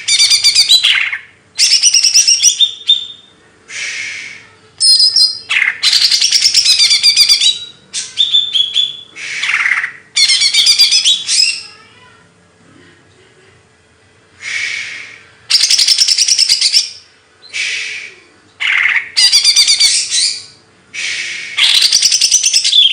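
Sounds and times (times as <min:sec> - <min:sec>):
faint steady hum: 0:00.0 - 0:22.9.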